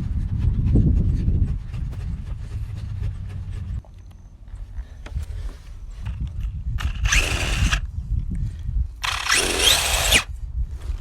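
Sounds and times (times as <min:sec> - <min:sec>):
steady low rumble: 0:00.0 - 0:03.9
toy truck electric motor whining: 0:06.8 - 0:07.8, 0:09.0 - 0:10.3.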